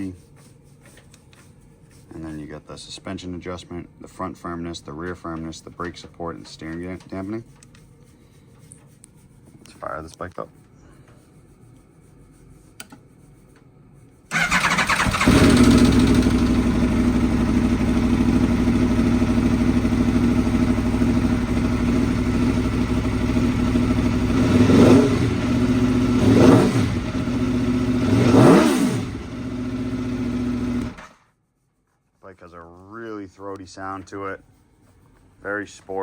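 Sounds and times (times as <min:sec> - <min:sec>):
motorcycle engine revving: 0:14.3 - 0:31.2
motorcycle engine starting: 0:14.3 - 0:31.3
motorcycle engine idling: 0:14.4 - 0:28.2, 0:29.0 - 0:31.1.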